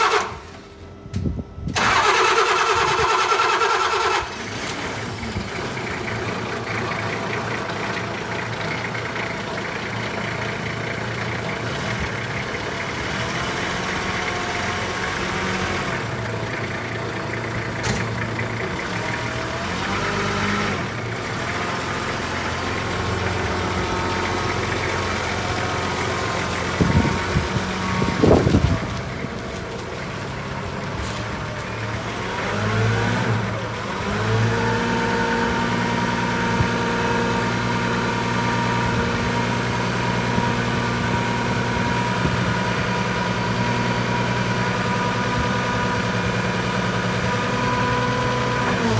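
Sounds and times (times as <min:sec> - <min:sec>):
starter motor cranking engine: 0:00.0 - 0:00.8, 0:01.7 - 0:34.7
truck engine idling: 0:00.0 - 0:48.9.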